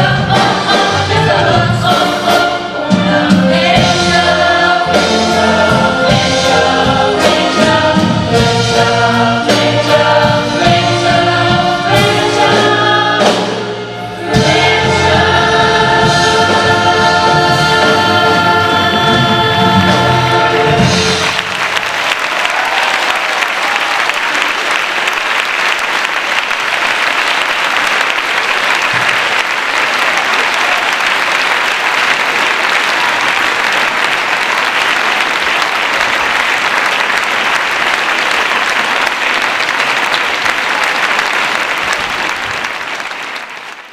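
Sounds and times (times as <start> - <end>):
audience applauding: 20.6 - 43.9.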